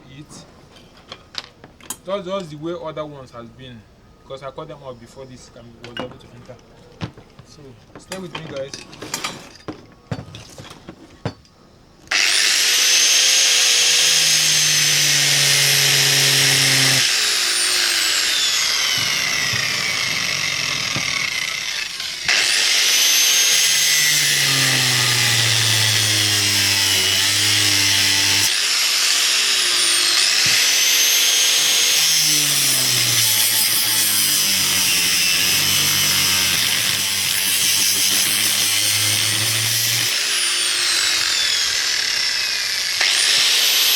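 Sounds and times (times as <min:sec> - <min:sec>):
power tool cutting metal: 0:12.1 - 0:43.9.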